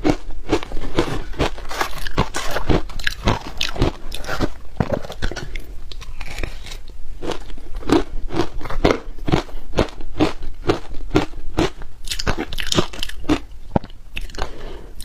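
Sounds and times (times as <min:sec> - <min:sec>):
crisp crunches of chewing ice: 0:00.0 - 0:13.5.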